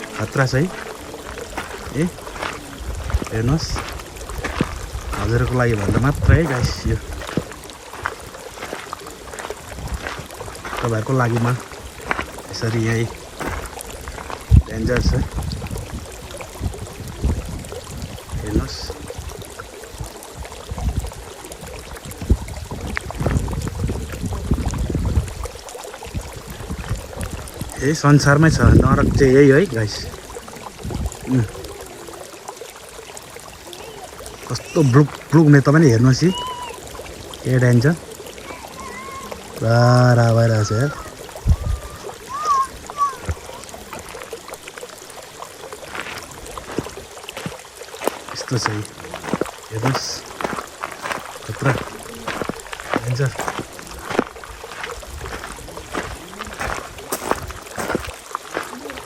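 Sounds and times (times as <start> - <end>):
boiling pool bubbling: 0.0 - 59.0
watery hiss: 0.0 - 59.0.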